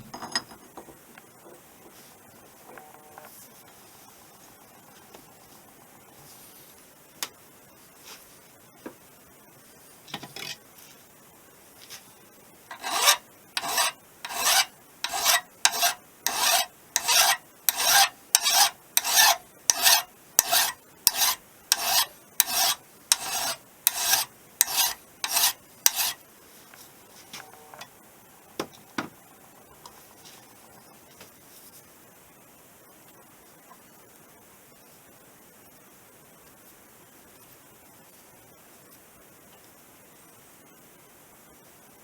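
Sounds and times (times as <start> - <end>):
hand file rasping on metal: 12.7 - 26.2.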